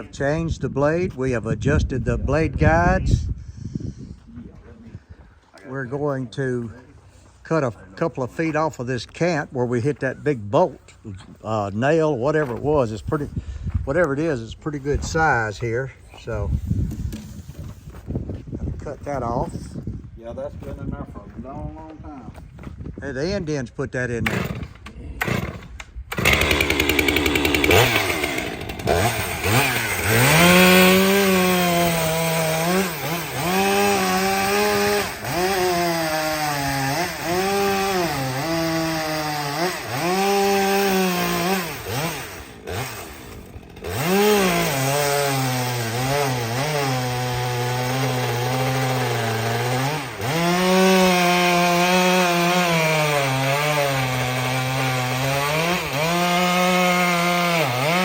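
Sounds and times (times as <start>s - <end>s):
chainsaw cutting wood: 24.2s - 58.0s.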